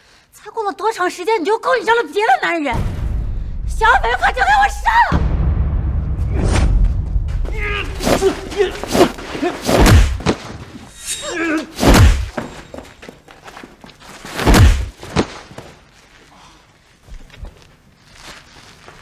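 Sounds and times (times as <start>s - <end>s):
heavy punch thuds: 5.2s - 10.5s, 11.8s - 12.5s, 14.4s - 15.0s
short grunt or shout: 7.5s - 10.2s.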